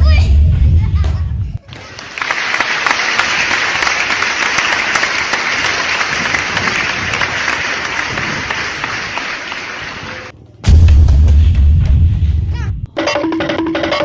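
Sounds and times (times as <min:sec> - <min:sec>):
crowd applauding: 0:01.6 - 0:10.3.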